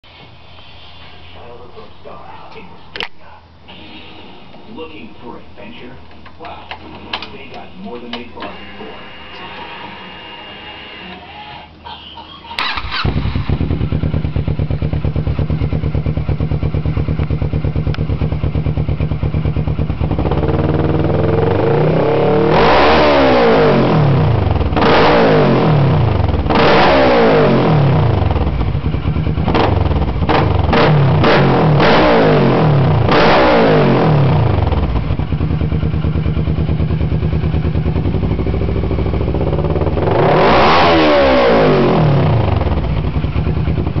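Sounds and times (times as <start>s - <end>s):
motorcycle engine idling and revving: 12.6s - 44.0s.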